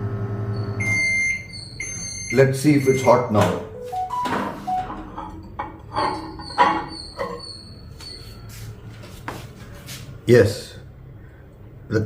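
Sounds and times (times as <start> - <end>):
microwave door opening: 3.0 - 5.4.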